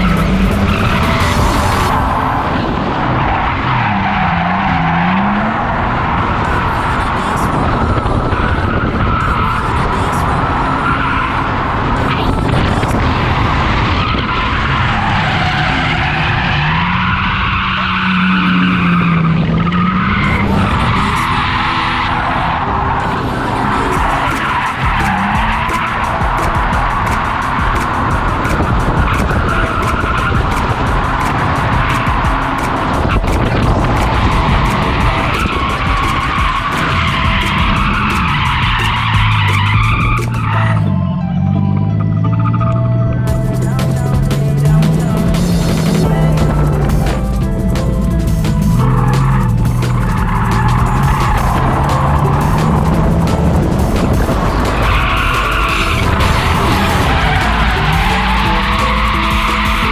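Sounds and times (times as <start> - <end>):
car engine running: 0.0 - 9.4, 43.3 - 59.9
car engine at high revs: 0.0 - 40.8, 43.5 - 59.9
music playing: 0.0 - 59.9
tyres skidding: 0.0 - 59.9.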